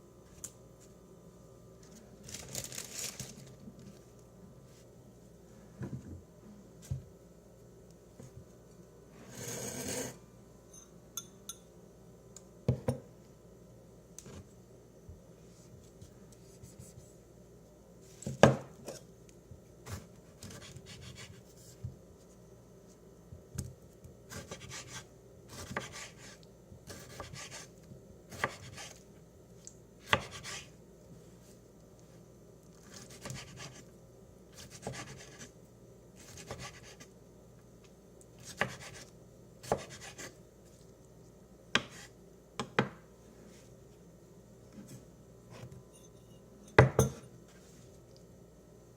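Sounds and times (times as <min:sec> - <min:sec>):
knife chopping on cutting board: 0:24.3 - 0:26.3, 0:26.9 - 0:27.6, 0:28.3 - 0:28.9, 0:30.1 - 0:30.6, 0:32.9 - 0:33.8, 0:34.6 - 0:35.4, 0:36.3 - 0:37.0, 0:38.4 - 0:40.3, 0:41.7 - 0:43.0.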